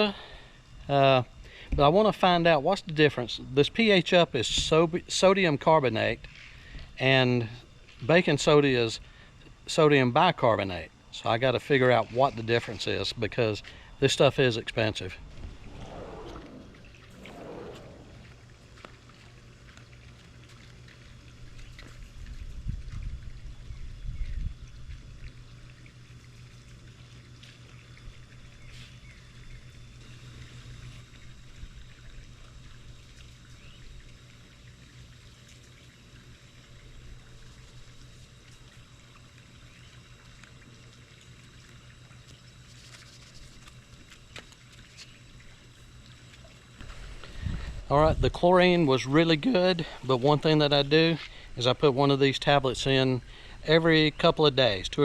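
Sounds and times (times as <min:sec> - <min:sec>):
pool water trickling and pouring: 0:01.9 - 0:55.0
low hum: 0:10.8 - 0:25.9
low thumps: 0:15.1 - 0:18.6.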